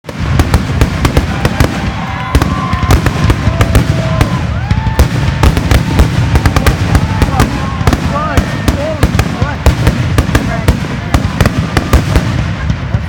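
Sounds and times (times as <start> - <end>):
fireworks bangs: 0.0 - 13.0
fireworks whistling: 0.1 - 13.0.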